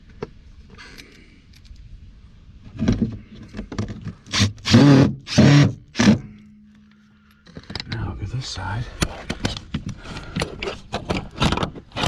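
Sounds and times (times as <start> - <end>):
faint clicks and handling: 0.1 - 1.9
cordless drill driving screws: 4.3 - 6.2.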